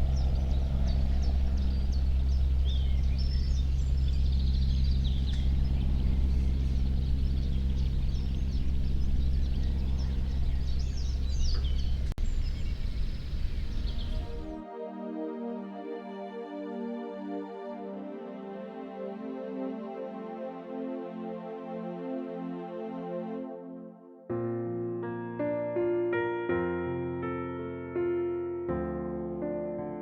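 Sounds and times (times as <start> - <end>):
faint hum: 0.0 - 14.6
small birds chirping: 0.0 - 14.6
steady low rumble: 0.0 - 14.6.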